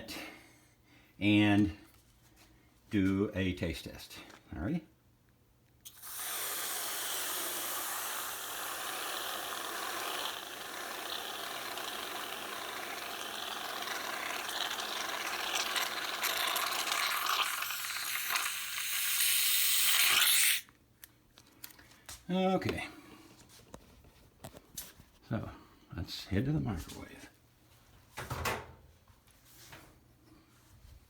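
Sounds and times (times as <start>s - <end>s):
gas hissing through valve: 5.9s - 20.6s.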